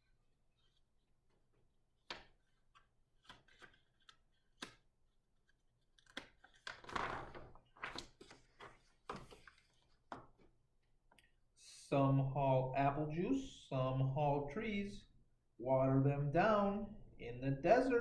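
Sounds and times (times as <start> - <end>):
book pages rustling: 2.0 - 10.5.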